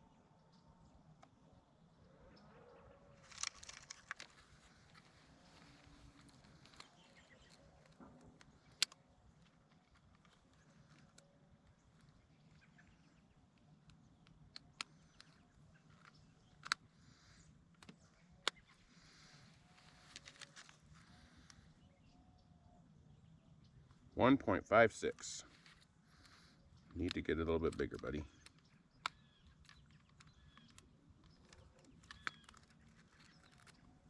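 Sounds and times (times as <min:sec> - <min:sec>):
faint steady background noise: 0:00.0 - 0:34.0
sharp handling clicks and knocks: 0:03.2 - 0:12.2, 0:17.7 - 0:21.6, 0:25.2 - 0:34.0.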